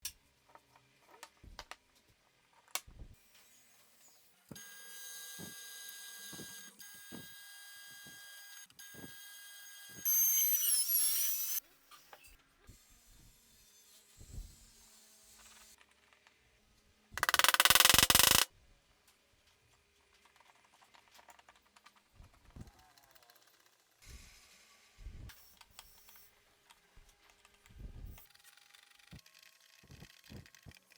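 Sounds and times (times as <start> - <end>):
knocks and clicks: 17.2 - 18.5.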